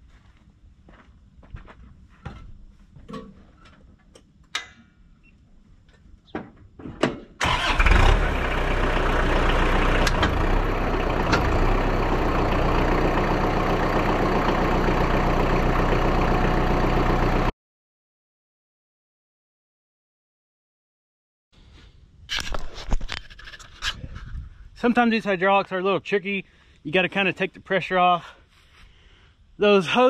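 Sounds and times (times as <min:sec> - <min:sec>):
diesel engine starting and idling: 0:07.4 - 0:17.5.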